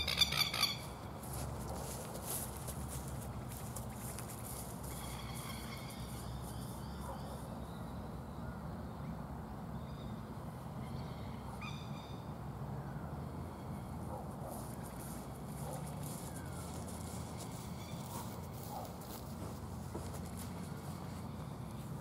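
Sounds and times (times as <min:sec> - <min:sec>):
birds calling: 0:00.0 - 0:01.4, 0:02.3 - 0:08.0.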